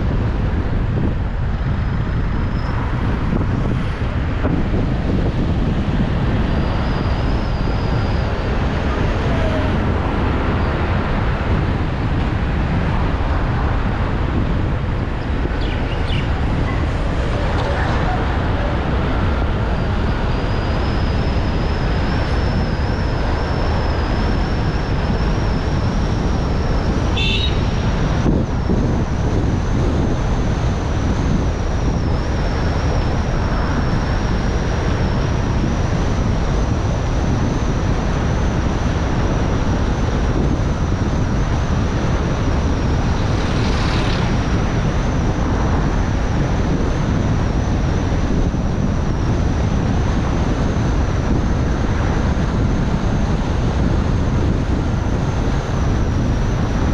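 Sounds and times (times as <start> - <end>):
car engine and road noise: 0.0 - 56.9
faint high whine: 4.8 - 11.3, 14.7 - 49.5.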